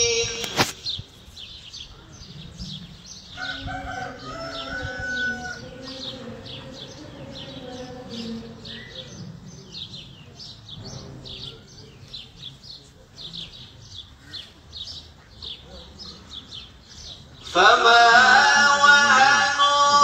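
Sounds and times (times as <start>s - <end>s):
small birds chirping: 0.0s - 17.8s
sharp click: 0.4s - 1.0s.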